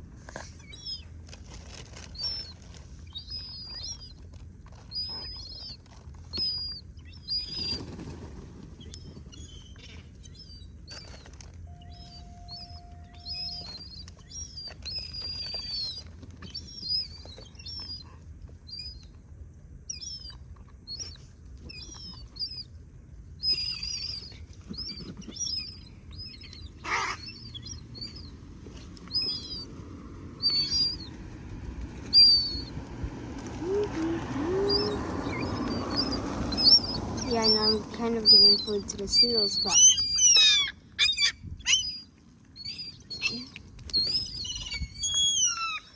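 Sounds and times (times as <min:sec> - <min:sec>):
birds chirping: 0:00.4 - 0:01.2, 0:02.1 - 0:19.2, 0:19.8 - 0:45.9.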